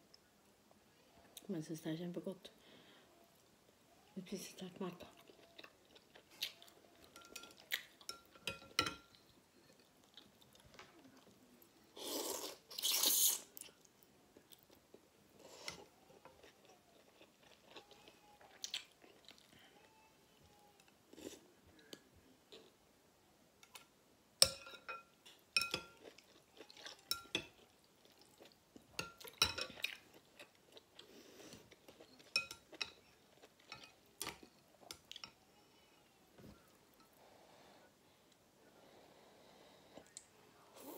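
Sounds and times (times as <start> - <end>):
slurping noodle soup: 12.0 - 13.6.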